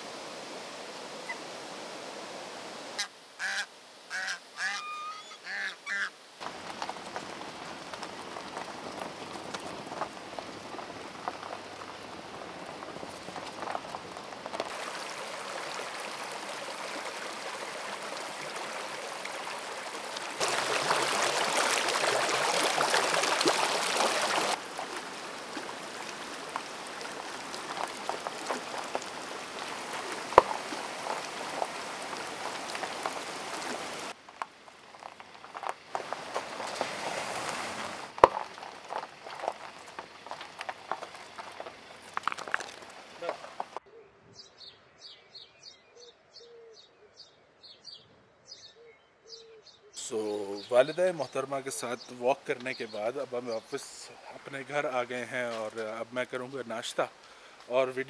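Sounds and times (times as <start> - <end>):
stream gurgling over rocks: 0.0 - 43.8, 50.0 - 58.0
duck calling: 3.0 - 6.2.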